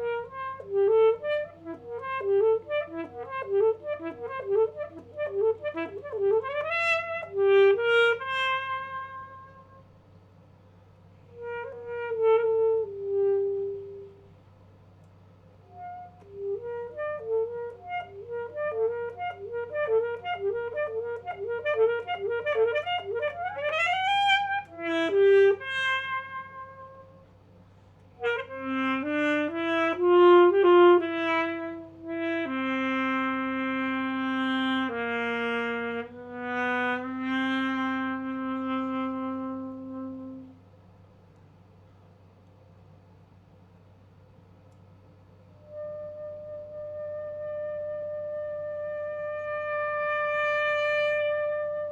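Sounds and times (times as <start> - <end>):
solo alto saxophone: 0.0 - 41.4, 44.6 - 51.9.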